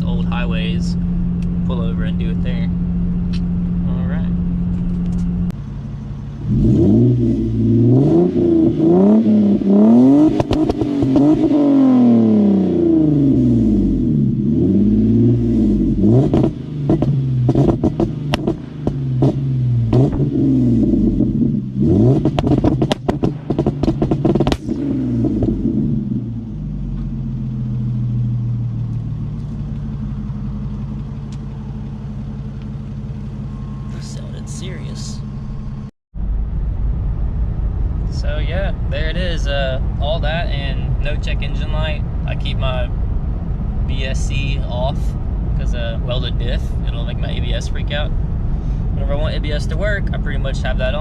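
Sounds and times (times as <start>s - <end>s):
car engine idling: 0.0s - 51.0s
car engine revving: 0.0s - 51.0s
exhaust pops and crackles: 4.5s - 5.6s, 10.2s - 11.6s, 16.2s - 20.4s, 22.1s - 25.8s, 26.8s - 35.8s.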